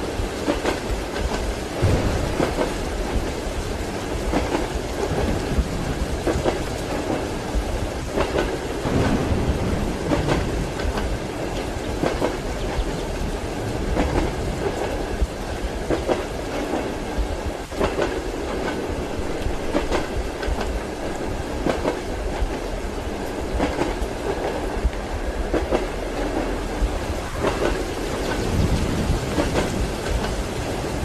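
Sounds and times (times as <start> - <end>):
railway carriage rumble: 0.0 - 31.0
train wheels clacking over rail joints: 0.0 - 31.0.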